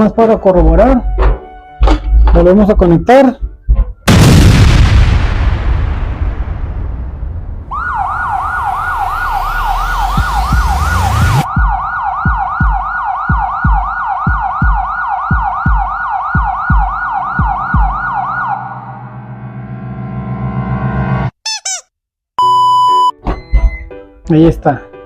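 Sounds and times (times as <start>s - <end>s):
low thumps: 0.8s - 7.7s
siren wailing: 7.7s - 19.1s.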